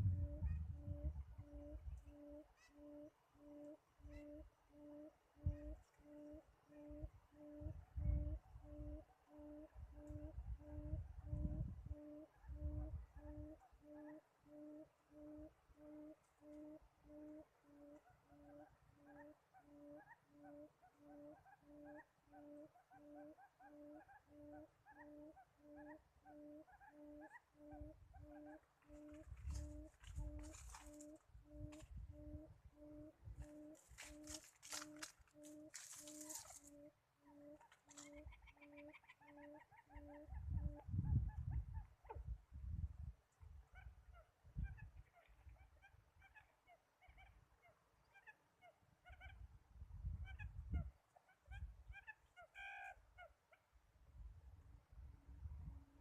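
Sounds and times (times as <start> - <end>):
low rumbling: 0.0 - 1.2
low hooting bird call: 0.0 - 42.2, 50.2 - 53.4.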